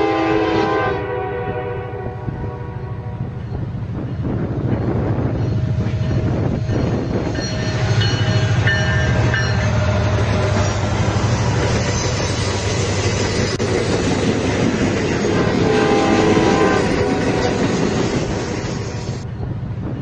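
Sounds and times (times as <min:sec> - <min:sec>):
train horn: 0:00.0 - 0:03.4, 0:15.3 - 0:18.0
diesel train engine drone: 0:00.0 - 0:20.0
train wheels rolling: 0:02.2 - 0:20.0.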